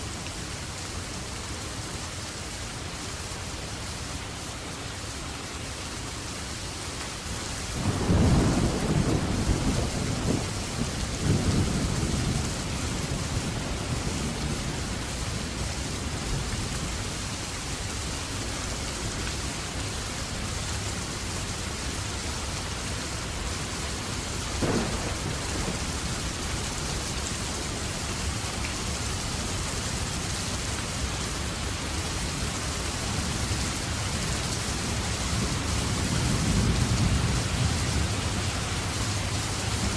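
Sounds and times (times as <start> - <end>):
steady rain: 0.0 - 39.9
thunder rumbling: 7.8 - 14.8, 24.6 - 27.0
sharp thunderclap: 24.6 - 26.1.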